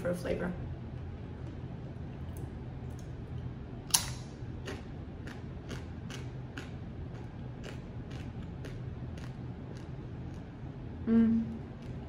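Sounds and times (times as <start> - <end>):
crunching while chewing: 3.9 - 10.6.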